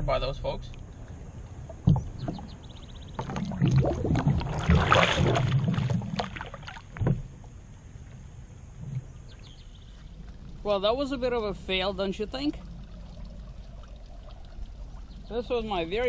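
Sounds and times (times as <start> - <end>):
kayak bumping and water splashing: 0.8 - 7.7.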